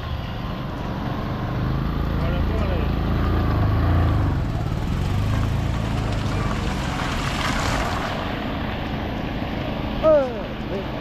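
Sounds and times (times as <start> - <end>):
heavy rain falling: 4.4 - 8.6.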